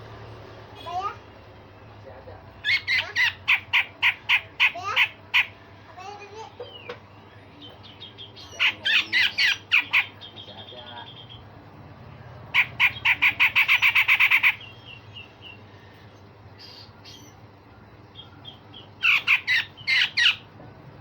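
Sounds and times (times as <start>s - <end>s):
bird giving harsh rasping calls: 2.6s - 5.7s, 8.1s - 11.4s, 12.5s - 15.6s, 18.4s - 20.5s.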